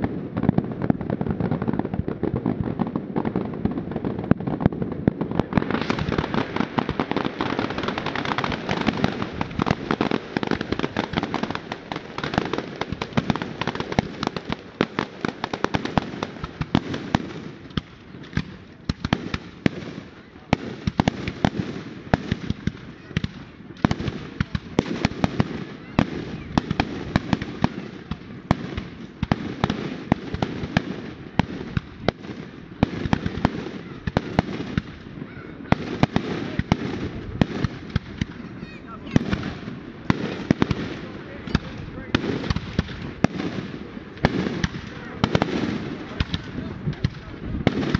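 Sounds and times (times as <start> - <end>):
continuous fireworks rumble: 0.0 - 47.9
fireworks bangs and crackles: 0.0 - 47.9.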